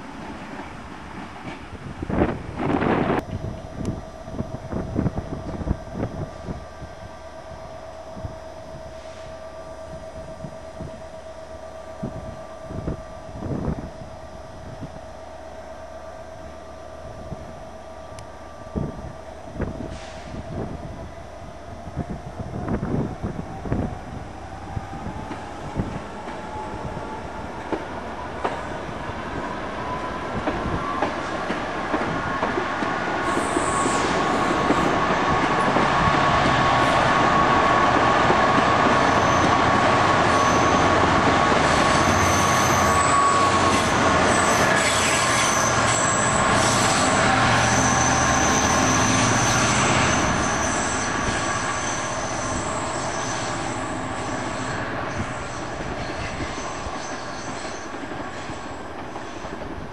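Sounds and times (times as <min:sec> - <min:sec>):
passenger train moving: 0:00.0 - 0:59.9
wheels squealing on rails: 0:22.0 - 0:59.9.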